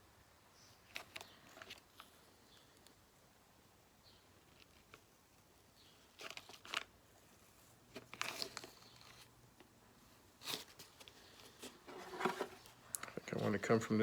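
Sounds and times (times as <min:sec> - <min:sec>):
transfer paper crinkling: 0:05.9 - 0:13.7.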